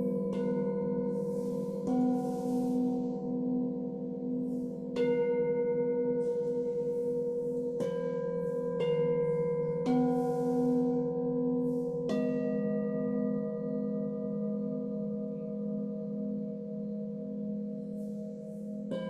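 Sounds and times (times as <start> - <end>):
singing bowls ringing: 0.0 - 19.0.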